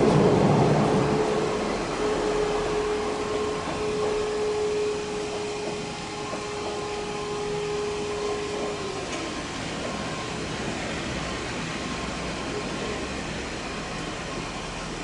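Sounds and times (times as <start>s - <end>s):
train wheels rumbling on rail: 0.0s - 15.0s
train whine: 0.0s - 15.0s.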